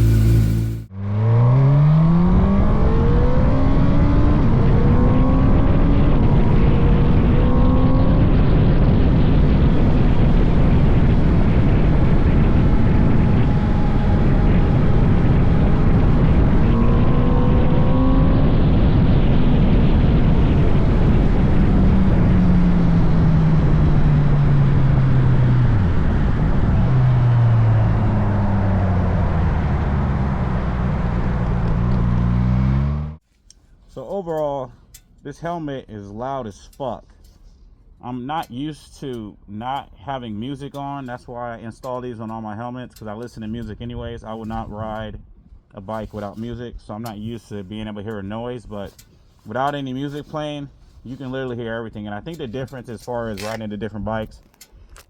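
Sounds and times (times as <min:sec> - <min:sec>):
motorcycle engine revving through gears: 0:00.0 - 0:33.2
wind rushing across microphone: 0:02.1 - 0:32.5.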